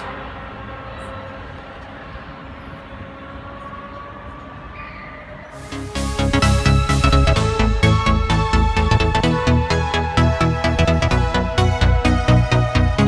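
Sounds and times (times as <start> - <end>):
electric train rumbling: 0.0 - 13.0
music: 5.6 - 13.0.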